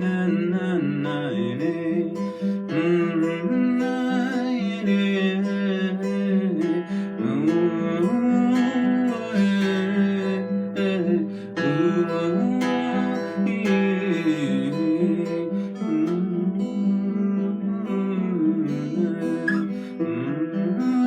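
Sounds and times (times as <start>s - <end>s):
plucked string instrument melody: 0.0s - 21.0s.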